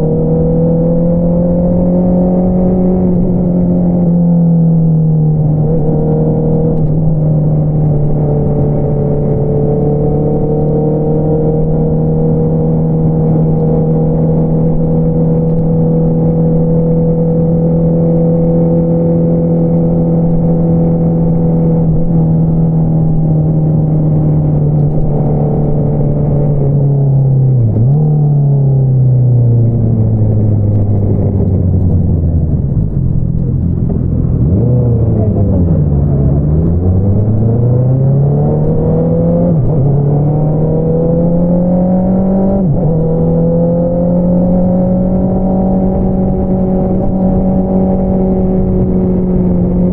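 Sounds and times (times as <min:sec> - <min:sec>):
motorcycle engine revving: 0:04.9 - 0:49.9.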